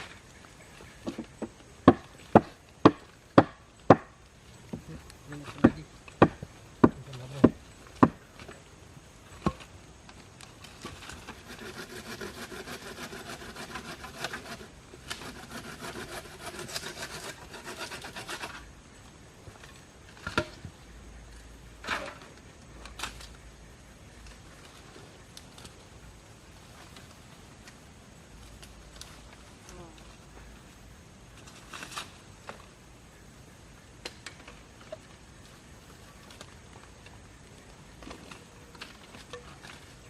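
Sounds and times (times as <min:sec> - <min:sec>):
hand saw cutting wood: 0:11.2 - 0:18.6.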